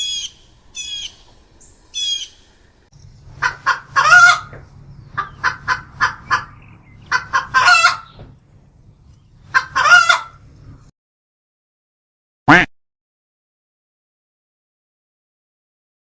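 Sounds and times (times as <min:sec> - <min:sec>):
steady low hum: 0:00.0 - 0:09.6
bird calls: 0:00.0 - 0:10.9.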